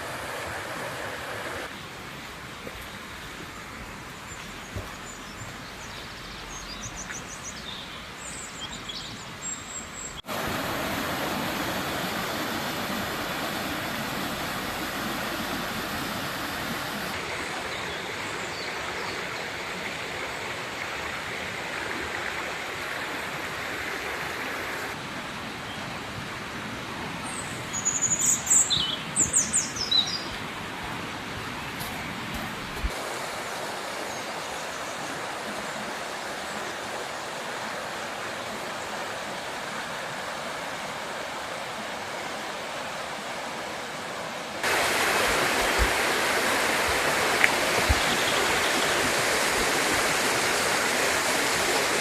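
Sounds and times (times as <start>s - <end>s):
river water rushing: 0.0s - 4.1s, 10.2s - 27.8s, 28.4s - 52.0s
small birds chirping: 44.6s - 49.6s.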